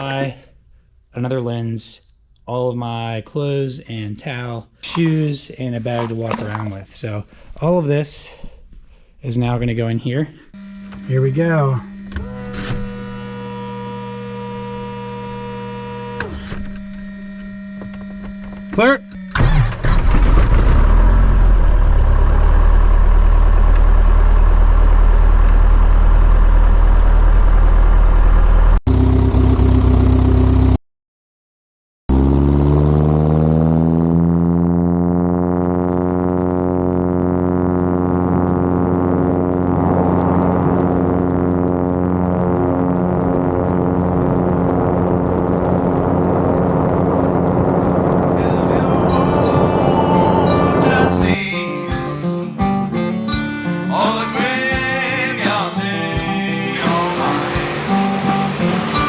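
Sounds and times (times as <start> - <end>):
light aircraft engine and propeller: 21.8 - 30.8, 34.5 - 39.8, 56.8 - 59.0.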